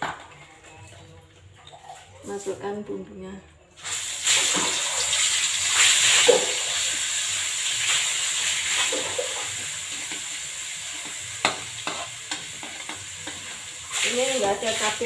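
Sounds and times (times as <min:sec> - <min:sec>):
spice paste sizzling in oil: 0:03.8 - 0:15.0
spatula stirring in wok: 0:06.8 - 0:15.0.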